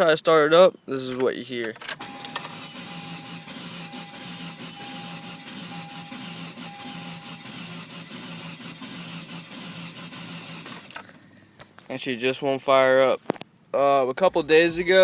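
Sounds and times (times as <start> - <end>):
car engine cranking on starter: 1.8 - 11.2
beeping tone: 14.2 - 15.0.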